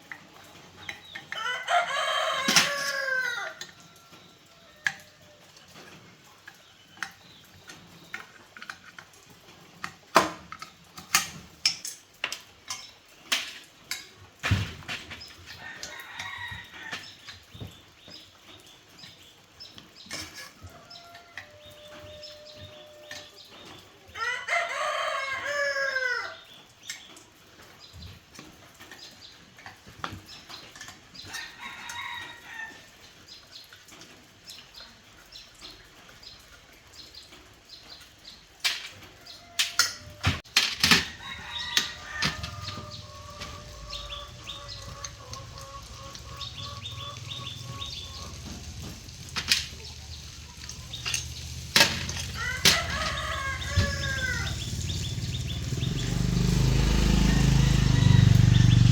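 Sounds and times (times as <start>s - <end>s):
rooster crowing: 1.4s - 5.4s, 24.2s - 26.4s, 41.0s - 50.0s, 51.8s - 58.9s.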